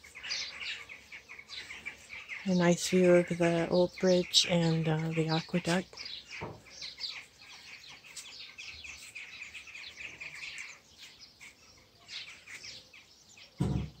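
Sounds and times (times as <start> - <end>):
small birds chirping: 0.0 - 14.0
loud thump: 13.6 - 14.0.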